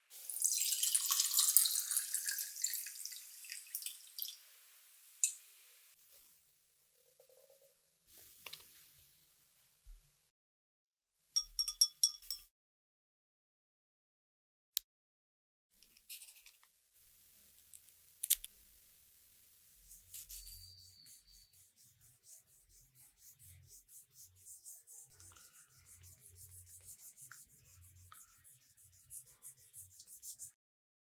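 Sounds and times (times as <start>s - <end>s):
hand sanding scratchy strokes: 19.9s - 30.6s.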